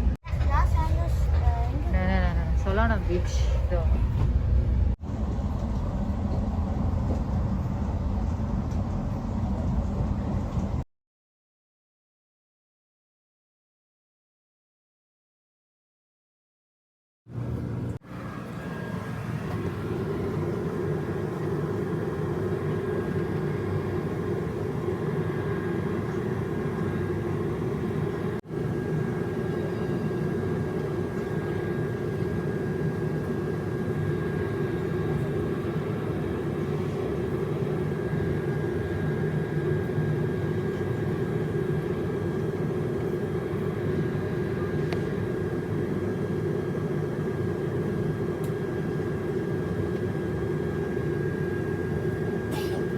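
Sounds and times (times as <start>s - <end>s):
train rumble inside coach: 0.0s - 10.8s
faint constant whine: 17.4s - 52.9s.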